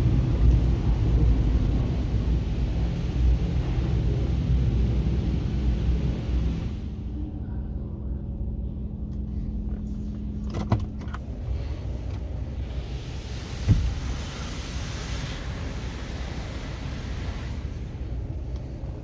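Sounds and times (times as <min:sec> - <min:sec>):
motor vehicle rumbling: 0:00.0 - 0:19.0
steady hum: 0:00.0 - 0:19.0
thump: 0:13.6 - 0:14.0.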